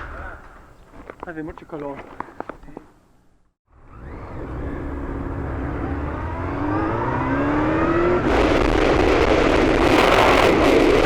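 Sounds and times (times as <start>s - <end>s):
motorcycle engine revving: 3.7s - 11.0s.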